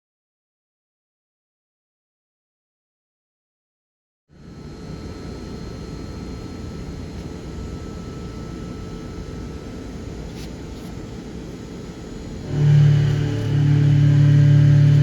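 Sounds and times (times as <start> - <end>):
faint high whines: 4.3 - 15.0
loud pitched hum: 4.3 - 15.0
milling machine rumble: 4.4 - 15.0.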